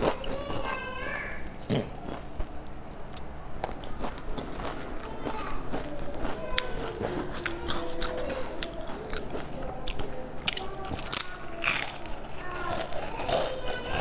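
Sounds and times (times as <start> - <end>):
wet mouth chewing clicks: 5.7 - 13.5.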